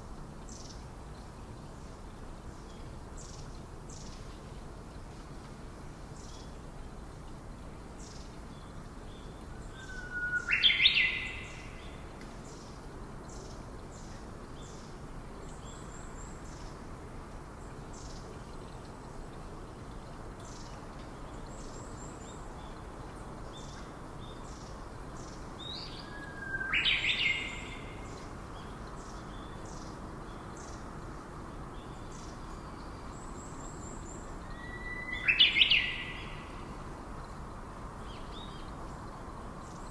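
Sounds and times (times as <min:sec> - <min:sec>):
faint high chirping: 0:33.9 - 0:36.7.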